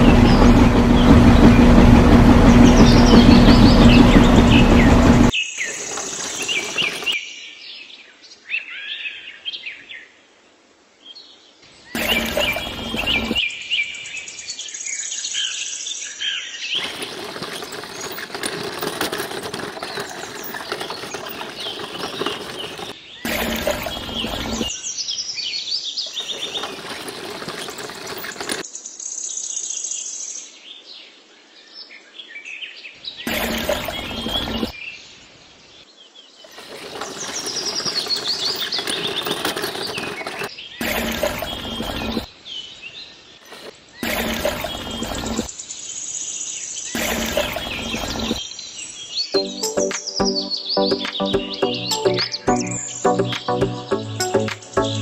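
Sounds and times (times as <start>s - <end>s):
birds chirping and singing: 0.0s - 7.5s, 11.9s - 15.7s, 16.4s - 28.8s, 36.3s - 55.0s.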